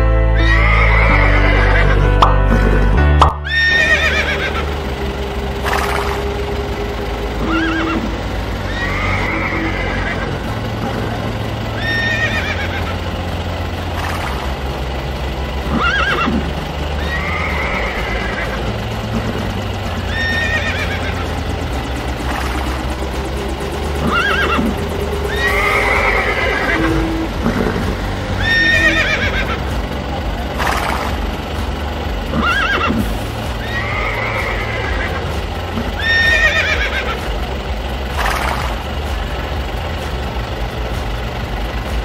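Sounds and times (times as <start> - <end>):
background music: 0.0 - 42.0
horses whinnying: 0.4 - 4.8, 7.4 - 10.6, 11.8 - 13.0, 15.6 - 21.4, 24.0 - 29.6, 32.3 - 37.3.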